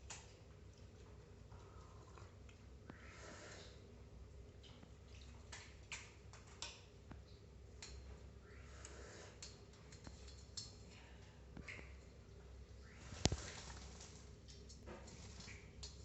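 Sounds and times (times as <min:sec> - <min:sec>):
beak clicks and taps: 0:09.4 - 0:10.8.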